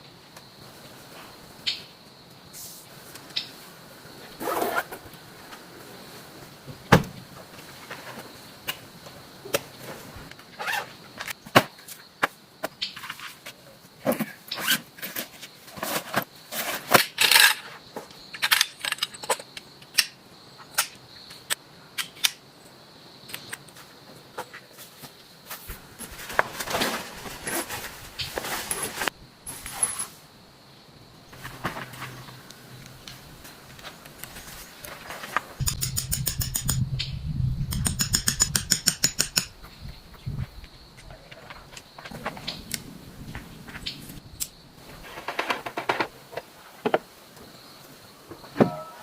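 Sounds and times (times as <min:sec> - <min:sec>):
faint high-pitched tone: 0:48.5 - 0:49.0.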